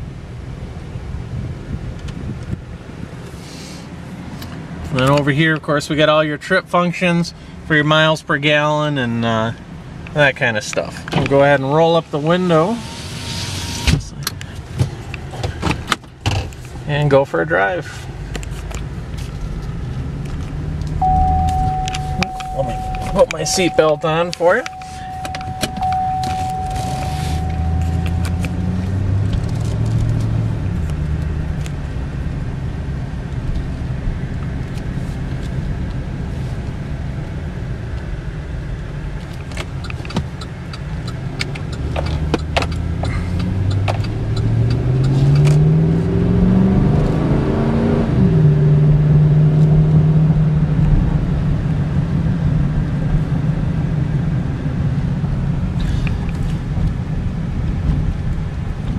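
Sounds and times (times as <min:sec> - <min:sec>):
road noise: 0:00.0 - 0:58.9
pickup truck engine accelerating: 0:18.4 - 0:34.8, 0:36.9 - 0:56.3.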